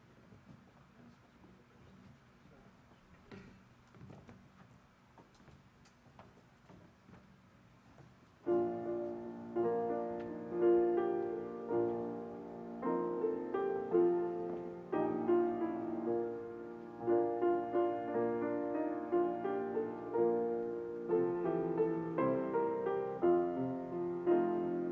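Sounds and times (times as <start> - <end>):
slow piano chords: 8.4 - 24.9.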